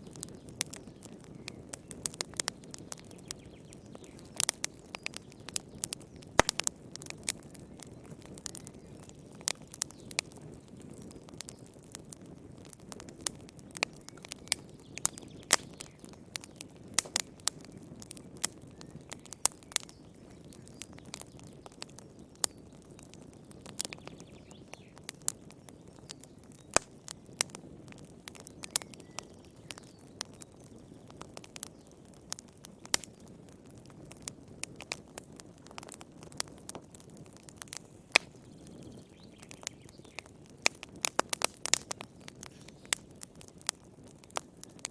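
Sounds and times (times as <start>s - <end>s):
campfire crackling and popping: 0.0s - 44.9s
flames hissing: 40.6s - 44.0s.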